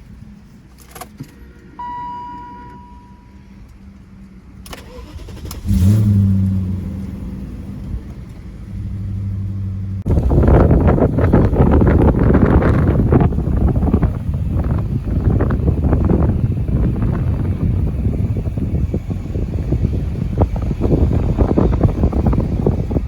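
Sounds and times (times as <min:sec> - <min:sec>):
car engine starting and idling: 0:00.0 - 0:23.0
clicks: 0:00.7 - 0:05.6
short electronic tone: 0:01.8 - 0:03.6.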